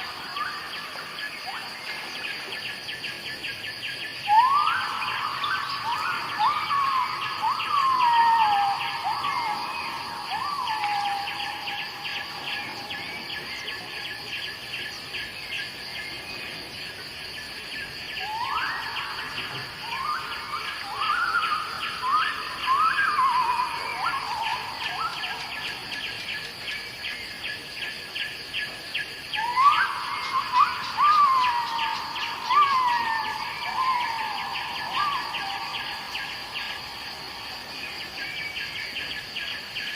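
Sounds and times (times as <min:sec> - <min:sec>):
pulsing insect chorus: 0:00.0 - 0:39.9
bird whistling song phrase: 0:04.2 - 0:14.4, 0:18.2 - 0:26.4, 0:29.3 - 0:36.8.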